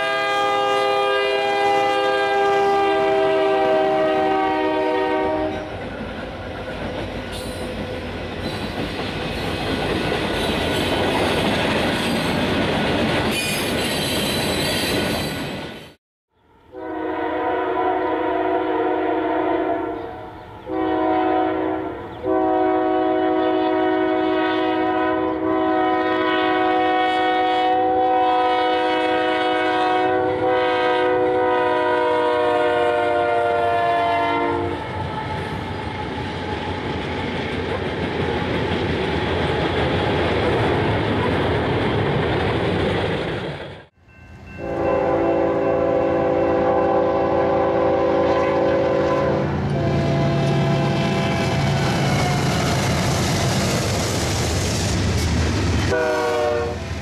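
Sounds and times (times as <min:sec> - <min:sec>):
locomotive horn blasts: 0:00.0 - 0:05.7, 0:16.6 - 0:35.6, 0:44.5 - 0:52.6, 0:55.9 - 0:56.9.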